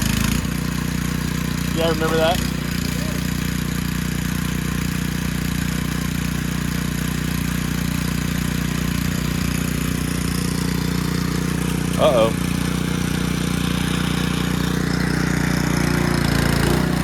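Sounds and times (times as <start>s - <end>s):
pressure washer blasting water: 0.0s - 17.0s.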